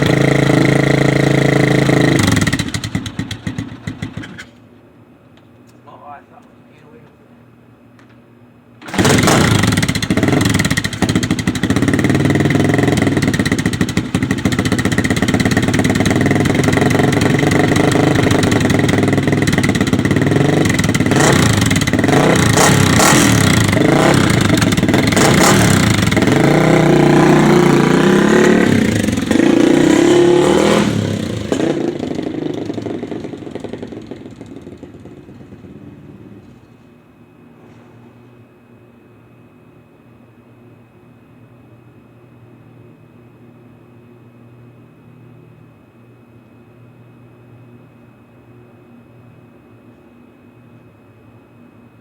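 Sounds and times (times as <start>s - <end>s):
dirt bike engine running: 0.0s - 4.5s, 8.9s - 36.5s
engine throttle blips: 8.8s - 36.6s.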